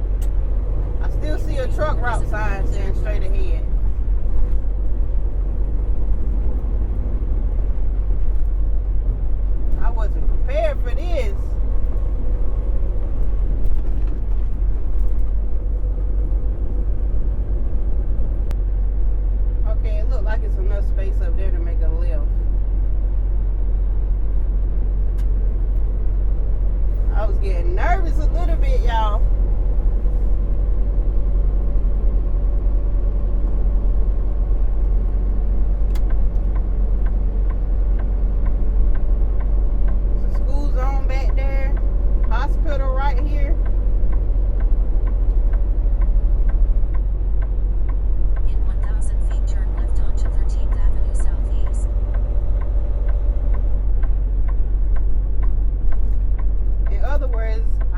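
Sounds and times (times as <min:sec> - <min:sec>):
truck engine rumble: 0:00.0 - 0:57.9
light regular ticking: 0:34.7 - 0:49.0, 0:49.6 - 0:57.9.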